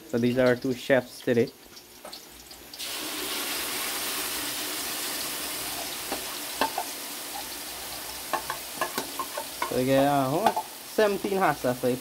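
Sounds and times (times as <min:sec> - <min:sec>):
hot oil sizzling in a pot: 0:00.0 - 0:12.0.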